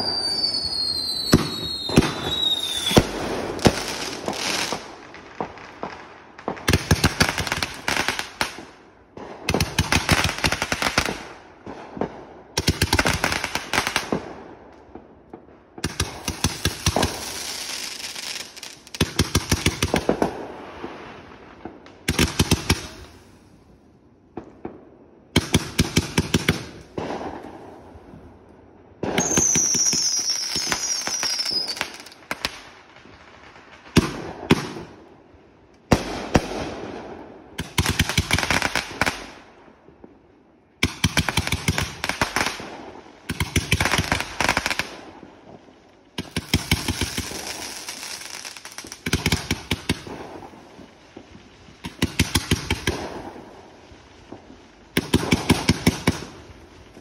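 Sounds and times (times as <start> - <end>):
falling firework whistles: 0.0 - 4.8, 29.1 - 32.2
fireworks crackling and banging: 0.0 - 57.0.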